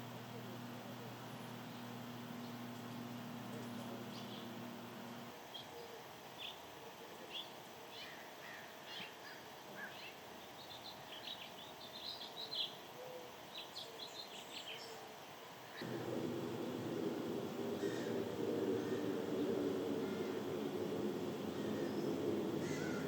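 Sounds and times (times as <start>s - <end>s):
small birds chirping: 0.4s - 6.7s, 7.3s - 12.8s, 15.7s - 23.0s
low steady rumble: 15.8s - 23.0s.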